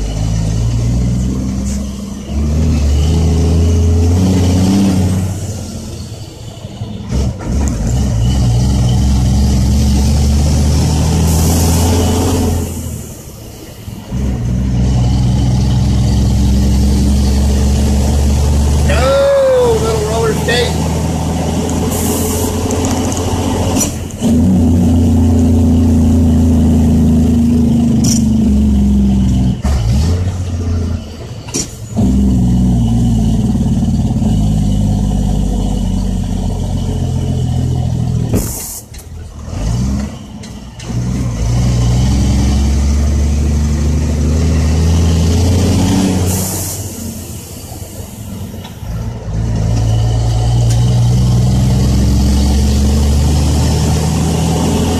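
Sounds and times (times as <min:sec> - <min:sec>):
diesel truck engine under load: 0:00.0 - 0:54.9
short air hisses: 0:38.4 - 0:39.0.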